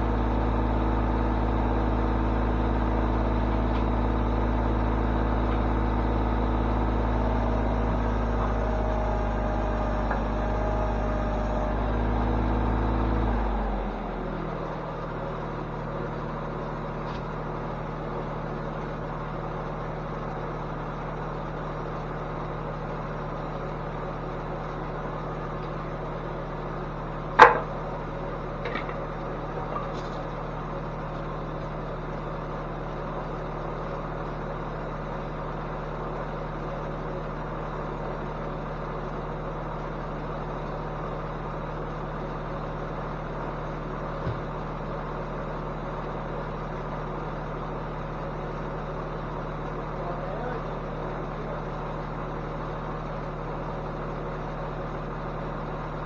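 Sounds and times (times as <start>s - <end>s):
low machine hum: 0.0s - 56.0s
sharp knock: 27.4s - 27.8s.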